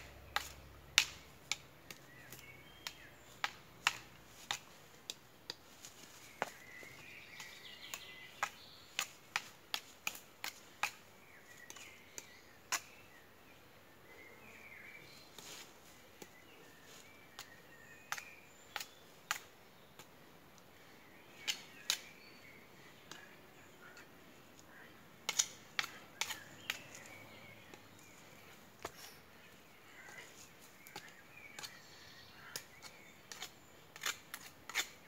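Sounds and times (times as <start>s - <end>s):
faint bird chirps: 25.7s - 33.8s.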